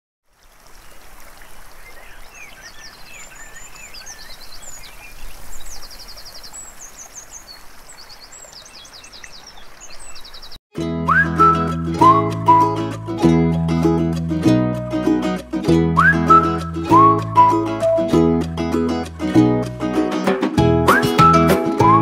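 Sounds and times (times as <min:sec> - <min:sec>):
songbirds singing: 0:00.3 - 0:10.6.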